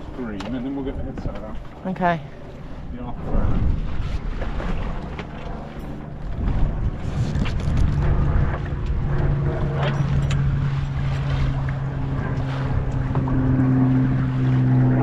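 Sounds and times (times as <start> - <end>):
low motor hum: 0.0 - 15.0
water noise: 0.0 - 15.0
wind: 0.0 - 15.0.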